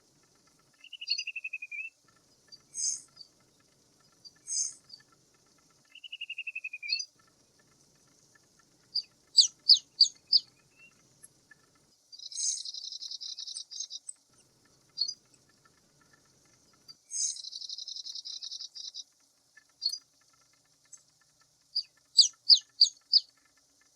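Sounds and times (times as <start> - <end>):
bird calling: 0.0 - 23.9
insect hiss: 0.0 - 23.9.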